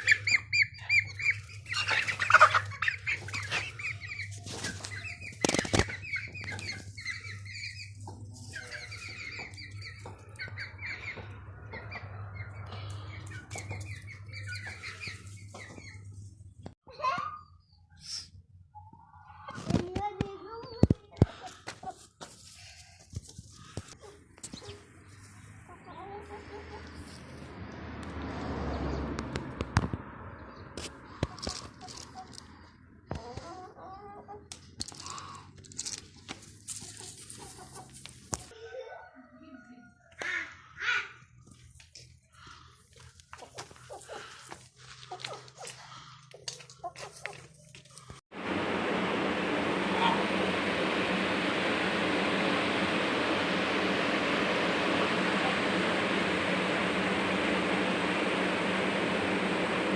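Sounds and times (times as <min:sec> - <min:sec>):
chickens clucking: 0:00.0 - 0:16.2, 0:18.7 - 0:19.7, 0:20.6 - 0:22.3, 0:23.6 - 0:27.2, 0:31.1 - 0:34.8, 0:36.7 - 0:42.2, 0:42.8 - 0:48.1
small birds chirping: 0:00.0 - 0:16.7
low hum: 0:48.3 - 0:59.9.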